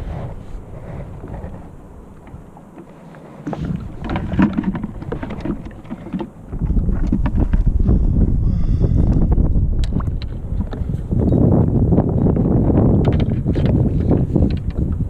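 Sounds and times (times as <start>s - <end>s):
water splashing against kayak: 0.0s - 8.3s
wind rumbling on microphone: 0.0s - 15.0s.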